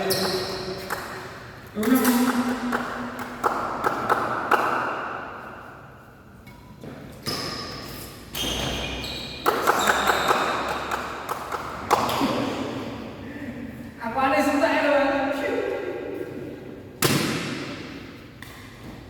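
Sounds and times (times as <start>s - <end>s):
shoe squeaks: 0.0s - 0.9s, 6.6s - 10.8s
rackets hitting shuttlecock: 6.5s - 12.4s, 17.0s - 19.0s.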